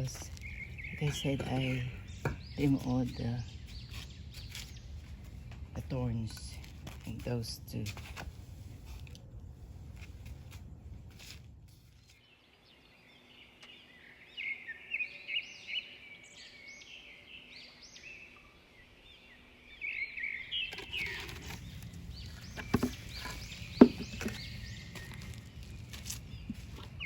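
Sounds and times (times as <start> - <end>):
small songbirds chirping: 0.0 - 7.8, 11.8 - 27.0
rustling: 20.7 - 27.0
sharp knocks: 23.8 - 24.4.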